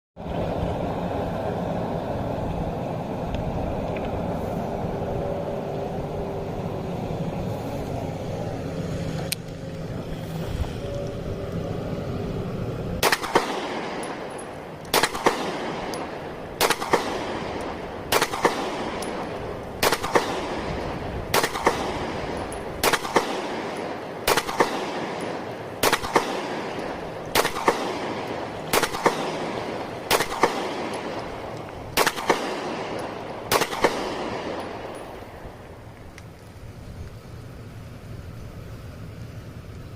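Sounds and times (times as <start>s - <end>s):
pistol shots echoing: 13.0s - 35.6s.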